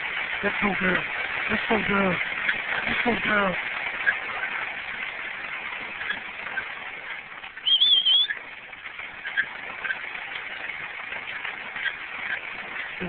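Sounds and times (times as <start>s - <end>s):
dog treadmill running: 0.0s - 13.0s
high wavering squeak: 7.6s - 8.4s.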